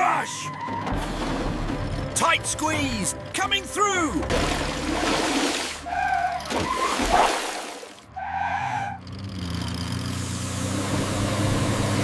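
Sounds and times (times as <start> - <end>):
engine running rising in pitch: 8.1 - 12.0.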